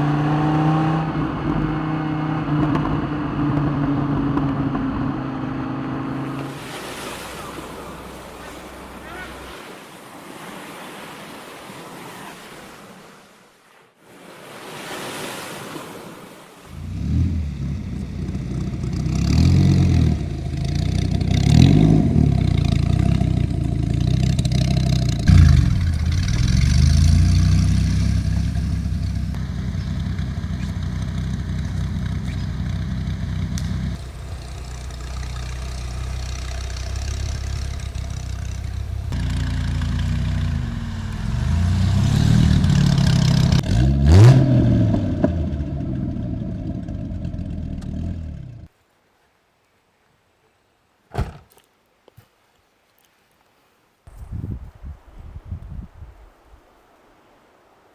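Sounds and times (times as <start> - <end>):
car engine revving: 0.0 - 9.5, 16.7 - 48.7
steady hiss: 16.7 - 43.6.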